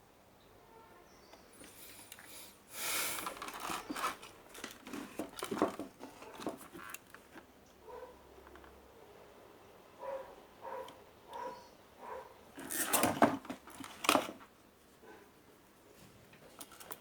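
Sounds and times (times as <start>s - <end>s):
handling rustles and clicks: 3.1s - 7.5s, 12.6s - 14.5s, 16.0s - 17.0s.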